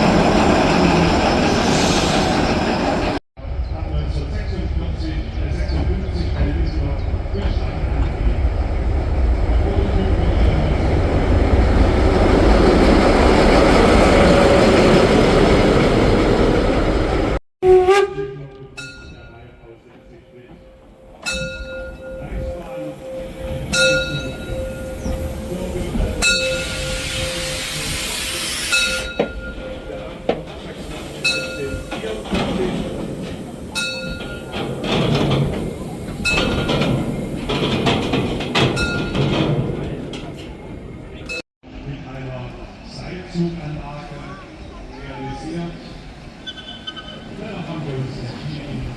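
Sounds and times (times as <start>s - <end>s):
train rumbling on rails: 0.0s - 48.9s
sharp metallic clanks: 28.7s - 41.4s.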